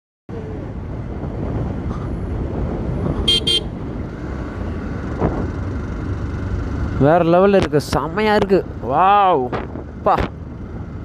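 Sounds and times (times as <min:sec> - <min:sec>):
wind: 0:00.3 - 0:11.0
motorcycle engine: 0:01.5 - 0:07.7
horn toots: 0:03.2 - 0:03.8.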